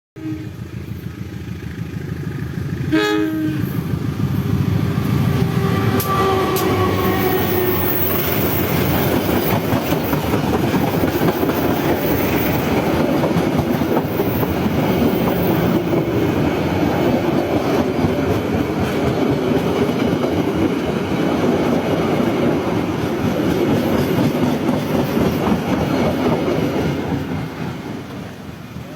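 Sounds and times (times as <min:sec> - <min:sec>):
train horn: 0:00.2 - 0:00.6, 0:02.9 - 0:03.8, 0:05.4 - 0:08.4
train wheels rumbling on rails: 0:00.4 - 0:28.9.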